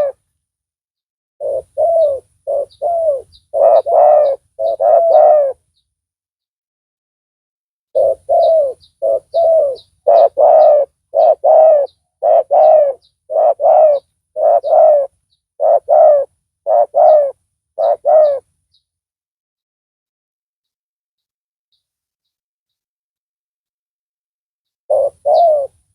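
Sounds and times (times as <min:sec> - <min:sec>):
dove cooing: 0:00.0 - 0:00.2, 0:01.4 - 0:05.6, 0:08.0 - 0:18.5, 0:24.9 - 0:25.9.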